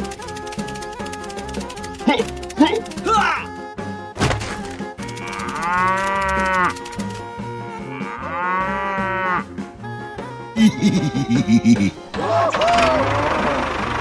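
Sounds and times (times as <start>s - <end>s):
background music: 0.0s - 14.0s
cow mooing: 5.1s - 6.9s, 7.6s - 9.5s.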